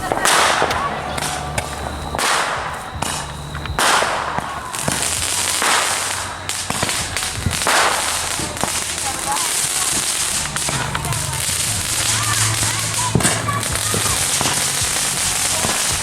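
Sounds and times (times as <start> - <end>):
fireworks bursting: 0.0 - 16.0
sharp cracks: 0.0 - 16.0.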